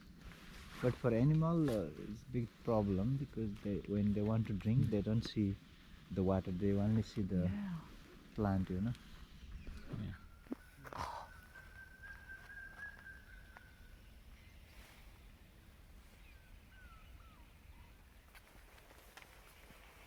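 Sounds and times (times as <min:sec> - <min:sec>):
faint bird calls: 0:01.7 - 0:20.0
brief rustle: 0:18.3 - 0:20.0.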